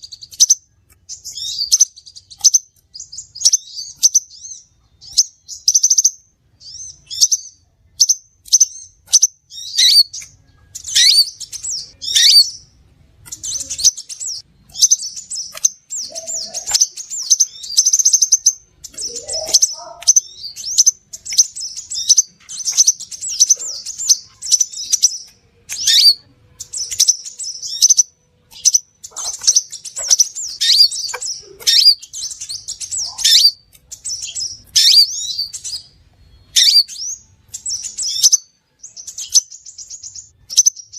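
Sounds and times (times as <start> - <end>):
bird chirping and trilling: 0.0 - 40.9.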